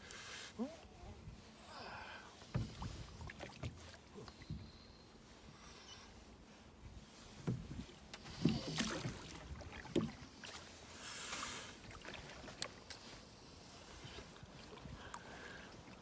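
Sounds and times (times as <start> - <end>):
water sloshing in a boat: 0.0 - 16.0
knocks against a hull: 2.5 - 3.0, 7.4 - 10.2.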